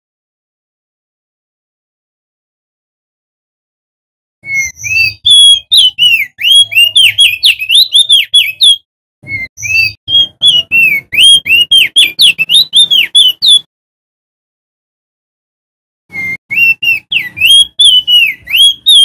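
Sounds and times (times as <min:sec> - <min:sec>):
bird singing whistled notes: 0:04.4 - 0:13.7, 0:16.1 - 0:19.0.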